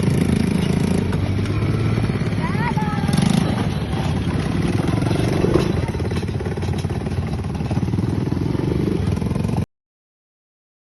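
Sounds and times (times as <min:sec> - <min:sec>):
atv engine running: 0:00.0 - 0:09.6.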